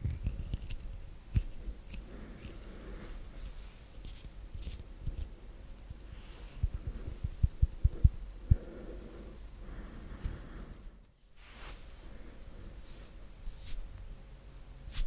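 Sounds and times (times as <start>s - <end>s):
soft hand rubbing: 10.1s - 13.9s.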